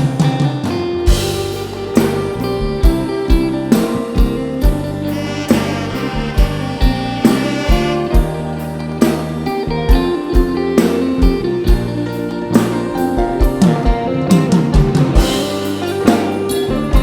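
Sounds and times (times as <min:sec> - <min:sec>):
band playing a sustained melody: 0:00.0 - 0:17.0.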